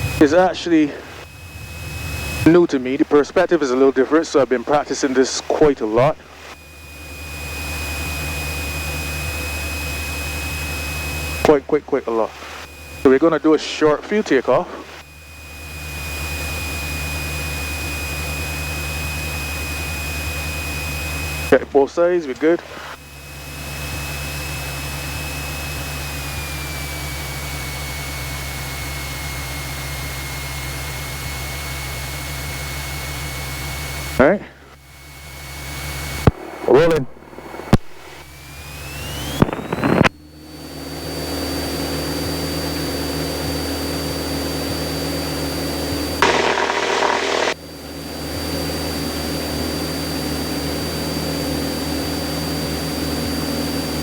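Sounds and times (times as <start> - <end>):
aircraft engine and propeller: 0.0 - 37.5, 38.1 - 54.0
thin whine: 0.0 - 54.0.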